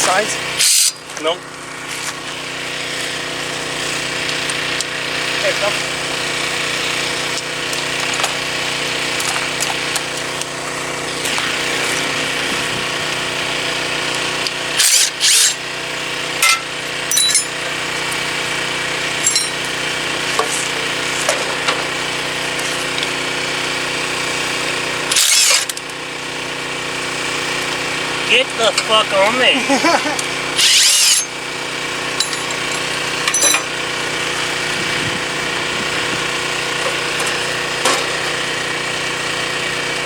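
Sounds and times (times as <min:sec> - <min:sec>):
hand tools scraping metal: 0:00.0 - 0:01.2, 0:16.4 - 0:18.2, 0:19.2 - 0:21.9, 0:25.1 - 0:25.8, 0:28.3 - 0:31.5, 0:32.1 - 0:33.8
engine running: 0:00.0 - 0:40.0.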